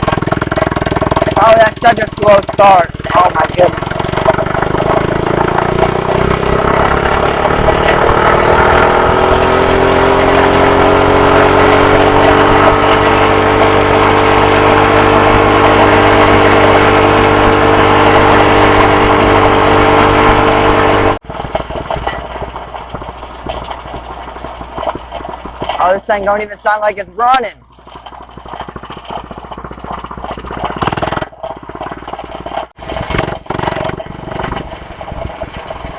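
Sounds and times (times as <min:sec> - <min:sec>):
electric dirt bike motor whining: 0:00.0 - 0:25.8, 0:27.6 - 0:35.9.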